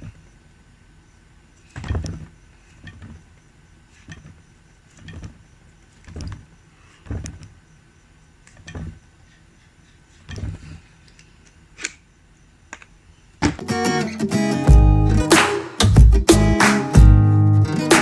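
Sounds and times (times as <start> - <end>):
dull knocks and clunks: 1.7 - 3.2.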